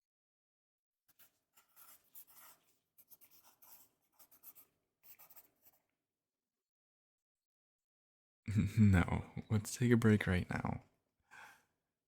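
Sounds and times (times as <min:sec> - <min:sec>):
pencil scribbling on paper: 0:01.1 - 0:05.9.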